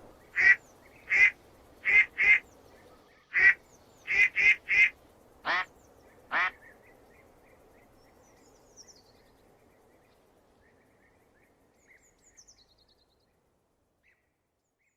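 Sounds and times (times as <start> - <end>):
duck quacking: 0.4 - 2.4, 3.3 - 4.9, 5.5 - 5.7, 6.3 - 6.6.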